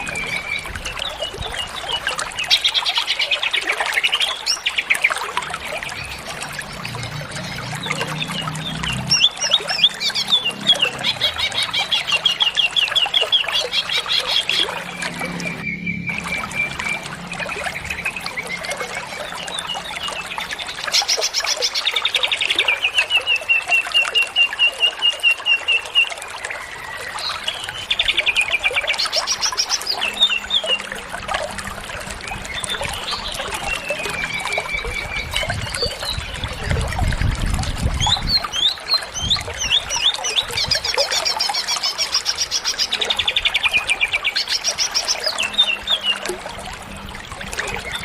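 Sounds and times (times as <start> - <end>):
bird singing trills and whistles: 15.4 - 30.9, 32.3 - 37.1, 38.0 - 46.3.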